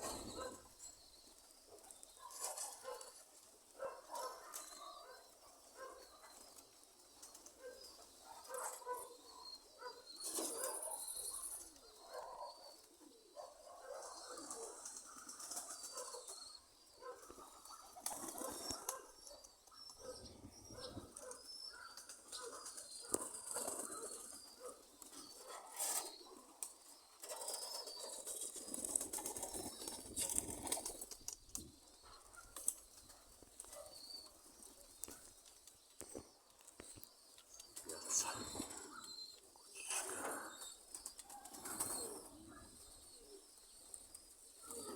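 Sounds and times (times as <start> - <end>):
pigeons cooing: 0.0 - 0.8, 7.2 - 35.3, 37.6 - 44.9
wings flapping: 17.9 - 19.0, 25.8 - 31.6.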